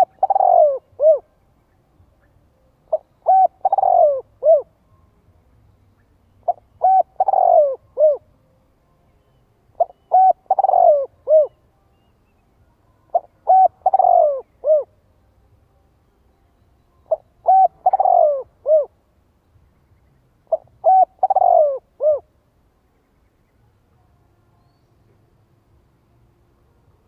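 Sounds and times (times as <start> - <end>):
dove cooing: 0.0 - 1.3, 2.9 - 4.8, 6.4 - 8.3, 9.8 - 11.6, 13.1 - 15.0, 17.1 - 19.0, 20.5 - 22.3.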